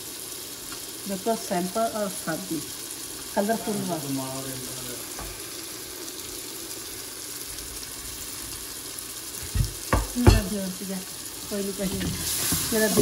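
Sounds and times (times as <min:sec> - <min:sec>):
masala sizzling in a pot: 0:00.0 - 0:13.0
wooden spoon knocking on pot: 0:09.4 - 0:10.6.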